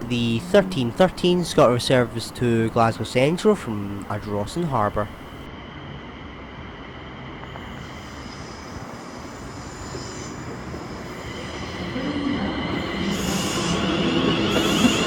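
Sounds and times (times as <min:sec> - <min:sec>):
high-pitched train squealing: 0:07.7 - 0:15.0.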